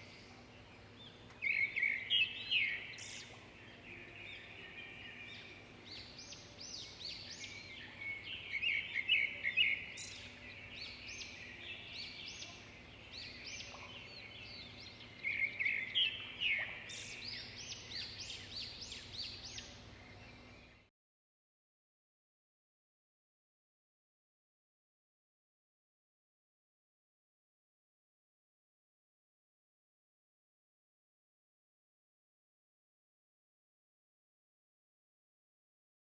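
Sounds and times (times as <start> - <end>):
birds chirping and singing: 0.0 - 20.9.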